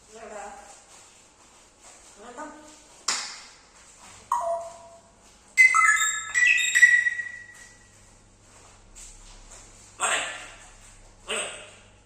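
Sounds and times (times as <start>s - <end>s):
bell-like chime melody: 4.3s - 5.0s, 5.6s - 7.4s.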